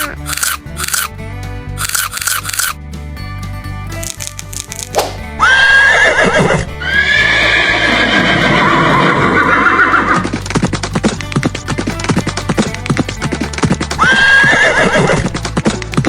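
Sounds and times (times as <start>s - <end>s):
background music: 0.0s - 16.0s
hooves clip-clopping: 3.4s - 16.0s
horse whinnying: 5.4s - 16.0s.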